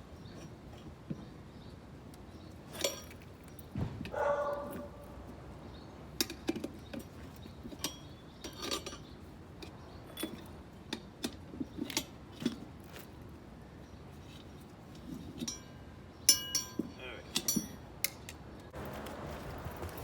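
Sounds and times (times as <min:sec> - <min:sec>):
metal tools clinking: 0:02.6 - 0:05.0, 0:06.2 - 0:13.1, 0:14.2 - 0:18.3.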